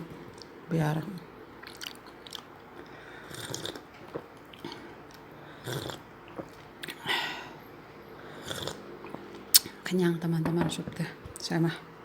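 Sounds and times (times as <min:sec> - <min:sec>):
person chewing food: 0:01.6 - 0:07.1, 0:08.4 - 0:09.7.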